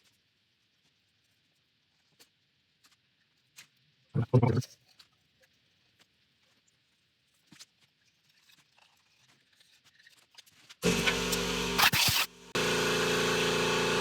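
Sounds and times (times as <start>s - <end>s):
faint clicks of small parts: 4.8s - 10.8s
machine humming: 10.8s - 14.0s.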